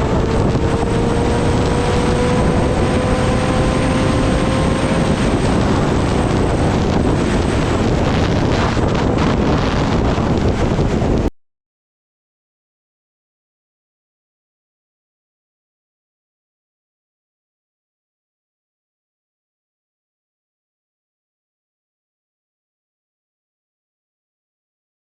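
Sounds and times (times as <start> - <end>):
motorcycle engine drone rising: 0.0 - 11.3
heavy wind rush on microphone: 0.0 - 11.4.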